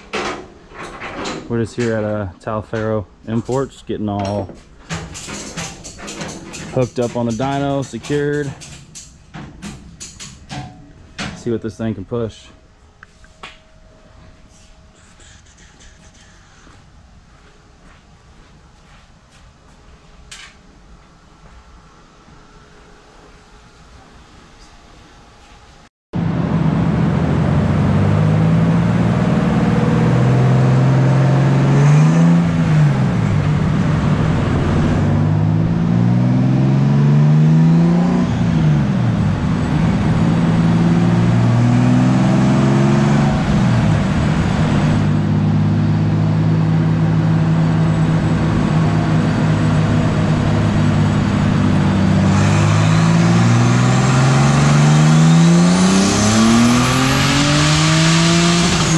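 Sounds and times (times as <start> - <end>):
car engine revving on dyno: 26.2 - 58.9.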